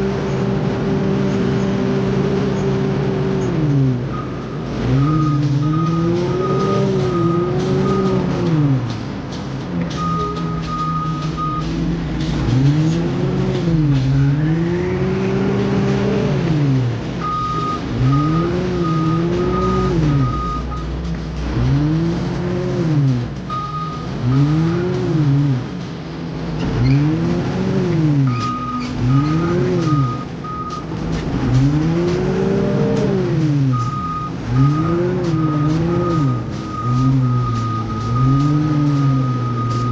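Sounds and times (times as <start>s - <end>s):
construction machine engine revving: 0.0s - 39.9s
high alarm beeping: 4.1s - 8.3s, 10.0s - 11.8s, 17.2s - 20.8s, 23.5s - 24.7s, 28.3s - 30.9s, 33.7s - 39.9s.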